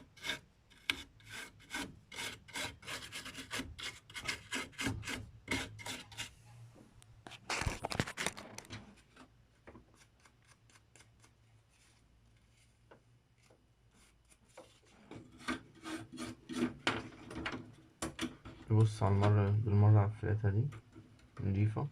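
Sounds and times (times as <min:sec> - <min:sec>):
small brush scrubbing circuit board: 0:00.0 - 0:06.4, 0:13.4 - 0:16.8.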